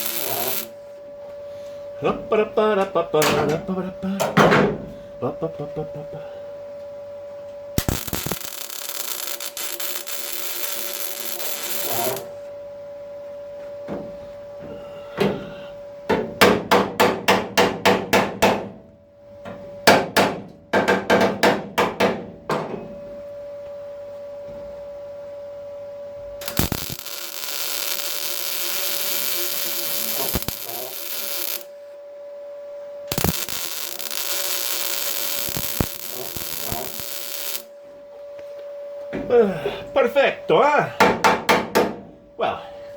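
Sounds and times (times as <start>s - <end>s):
short sharp welder pulses: 0.0s - 0.7s, 7.8s - 12.3s, 26.4s - 31.7s, 33.1s - 37.7s
welder crackling: 0.0s - 0.7s, 7.8s - 12.4s, 26.4s - 31.8s, 33.1s - 37.7s
steady hum: 0.0s - 42.9s.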